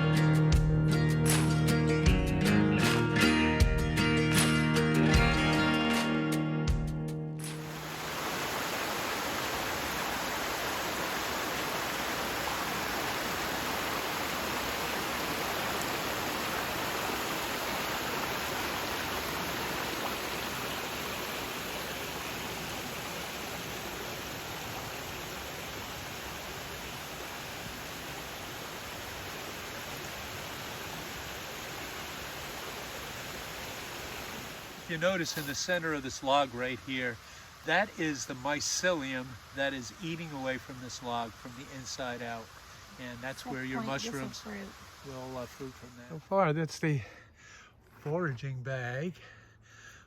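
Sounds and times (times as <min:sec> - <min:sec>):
stream rushing: 0:07.5 - 0:46.2.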